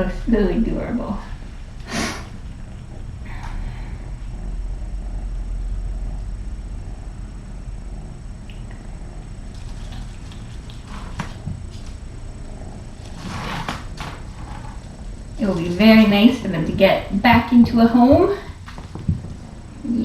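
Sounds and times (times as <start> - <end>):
kitten purring: 0.0 - 20.0
rustling and handling noises: 9.4 - 20.0.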